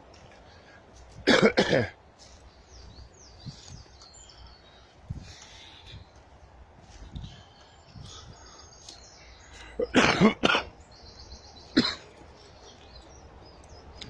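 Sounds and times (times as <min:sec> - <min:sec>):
faint birds chirping: 0:00.0 - 0:14.0
man coughing: 0:01.2 - 0:02.0, 0:09.8 - 0:10.7, 0:11.8 - 0:12.2.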